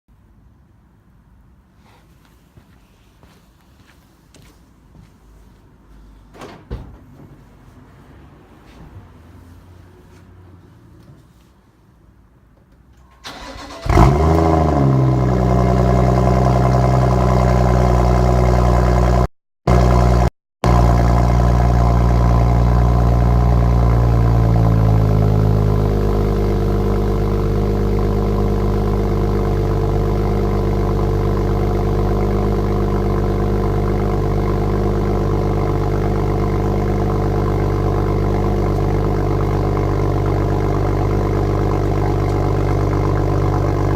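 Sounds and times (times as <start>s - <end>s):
car engine cold start idling: 13.2s - 16.2s.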